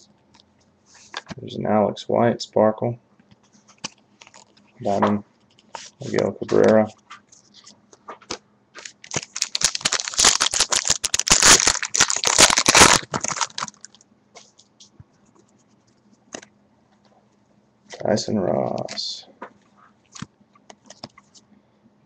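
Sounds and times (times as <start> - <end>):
cards rustling: 3.6 - 14.5, 20.2 - 21.4
wrapper crinkling: 3.8 - 4.6, 7.5 - 14.0.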